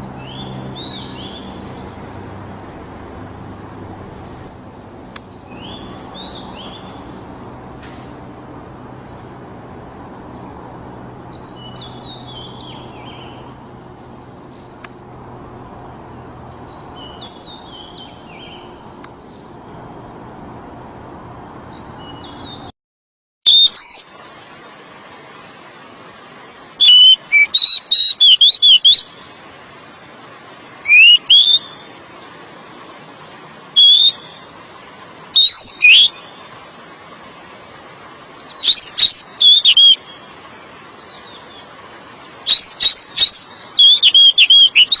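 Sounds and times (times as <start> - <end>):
bird singing whistled notes: 0.0 - 20.5, 21.3 - 22.7, 23.5 - 24.9, 30.9 - 31.9, 33.8 - 34.5, 35.4 - 37.2, 38.4 - 40.3, 42.5 - 45.0
steady hiss: 0.0 - 22.7.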